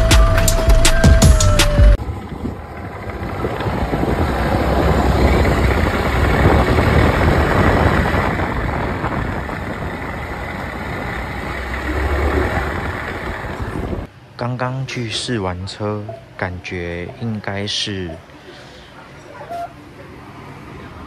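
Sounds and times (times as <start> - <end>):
scooter engine running: 0.2 - 14.1
abnormal drivetrain noise: 2.0 - 14.1.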